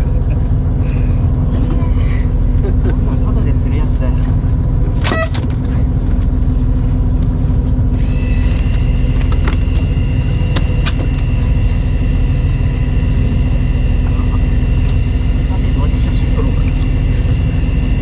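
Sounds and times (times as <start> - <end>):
engine rumbling: 0.0 - 18.0
high whining tones: 7.8 - 18.0.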